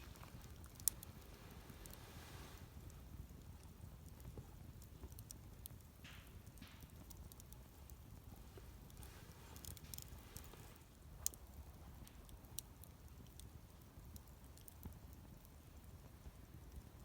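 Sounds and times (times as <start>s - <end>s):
fire hissing: 0.0s - 3.5s, 7.8s - 11.2s
burning wood popping: 0.0s - 17.0s
wood fire crackling: 0.0s - 17.0s.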